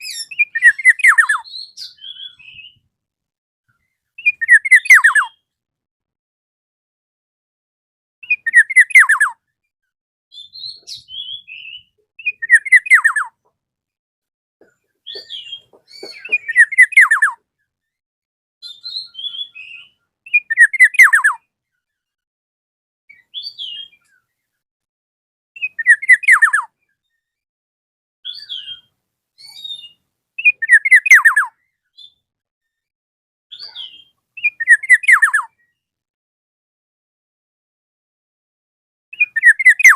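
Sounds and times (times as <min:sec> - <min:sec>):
bird whistling: 0:00.0 - 0:02.7, 0:04.2 - 0:05.4, 0:08.2 - 0:09.3, 0:10.3 - 0:13.3, 0:15.1 - 0:17.4, 0:18.6 - 0:21.4, 0:25.6 - 0:26.7, 0:29.5 - 0:32.1, 0:33.5 - 0:35.5, 0:39.2 - 0:39.9.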